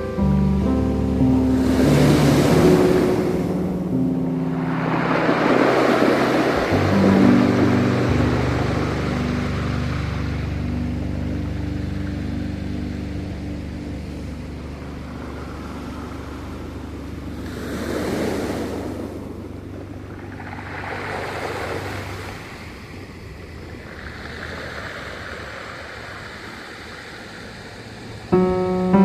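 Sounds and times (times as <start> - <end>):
low steady rumble: 0.0 - 17.8
piano music: 0.0 - 21.4, 28.3 - 29.0
sea waves washing ashore: 0.0 - 29.0.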